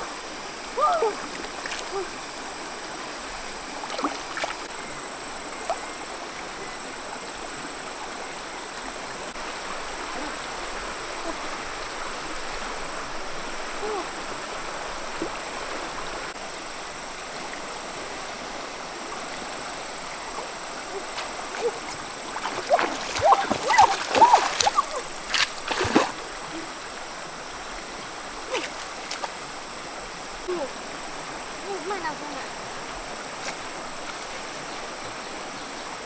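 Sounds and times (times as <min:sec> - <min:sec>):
river water flowing: 0:00.0 - 0:36.0
small water splashes: 0:00.0 - 0:36.0.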